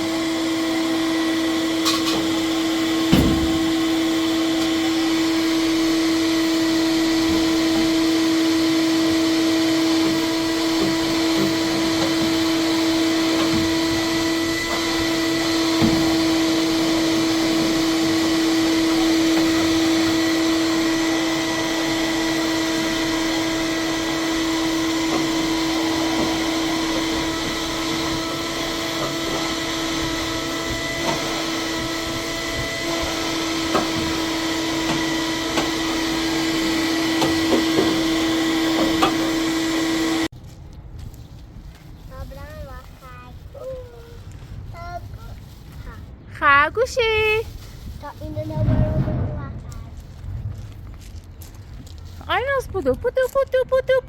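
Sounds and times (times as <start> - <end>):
vacuum cleaner running: 0.0 - 40.3.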